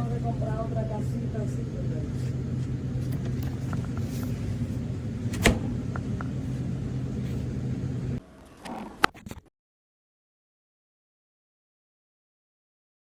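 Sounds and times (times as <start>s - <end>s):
low mechanical hum: 0.0s - 9.4s
sharp click: 5.3s - 6.1s.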